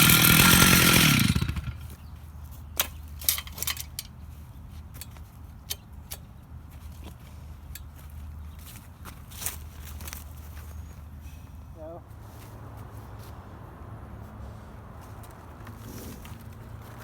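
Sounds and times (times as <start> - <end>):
chainsaw running: 0.0 - 2.0.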